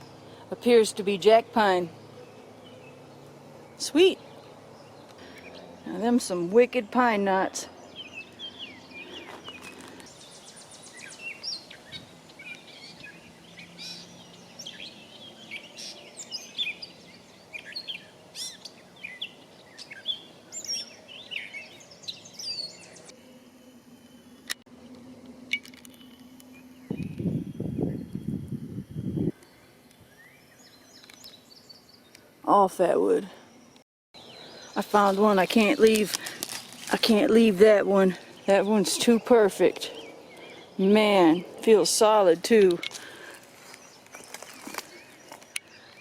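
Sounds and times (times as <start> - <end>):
songbirds chirping: 0.0 - 46.0
rustling: 34.8 - 37.3, 42.8 - 45.6.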